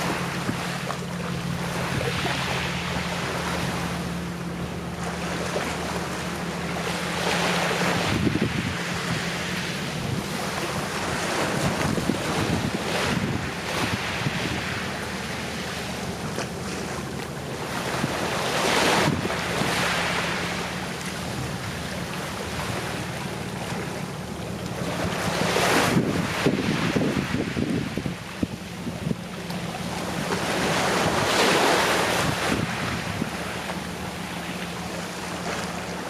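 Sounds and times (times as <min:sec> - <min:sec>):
sea waves breaking gently: 0:00.0 - 0:36.0.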